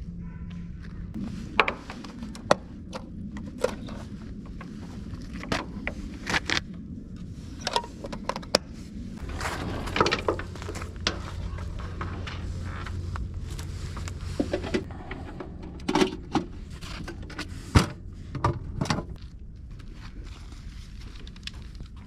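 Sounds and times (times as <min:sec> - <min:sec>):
low steady hum: 0:00.0 - 0:22.0
rustling: 0:08.8 - 0:22.0.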